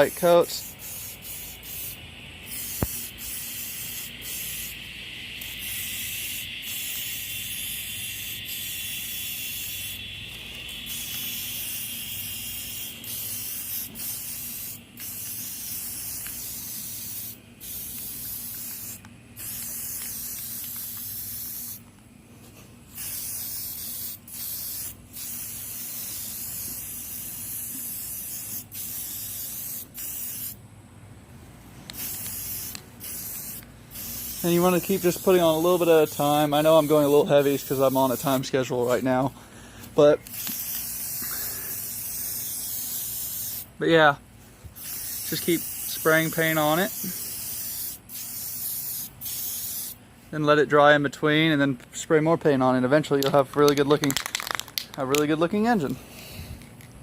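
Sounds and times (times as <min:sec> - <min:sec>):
spray paint hissing: 0:00.0 - 0:30.6, 0:31.8 - 0:43.8, 0:44.4 - 0:50.0, 0:53.2 - 0:55.3.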